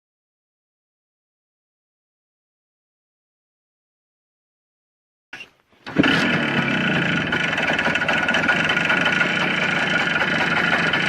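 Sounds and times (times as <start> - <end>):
motorcycle engine idling: 5.9 - 11.0.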